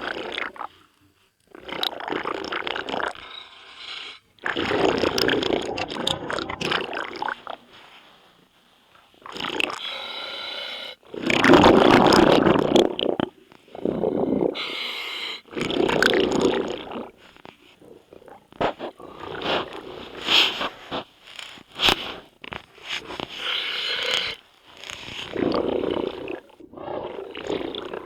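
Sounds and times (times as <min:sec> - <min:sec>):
bubbles bursting on exhale: 0:00.0 - 0:00.8, 0:01.5 - 0:03.4, 0:04.4 - 0:07.7, 0:09.2 - 0:09.8, 0:11.1 - 0:14.8, 0:15.4 - 0:20.8, 0:25.0 - 0:28.0
regulator hiss on inhale: 0:03.2 - 0:04.4, 0:09.8 - 0:11.1, 0:13.7 - 0:15.5, 0:18.6 - 0:26.5.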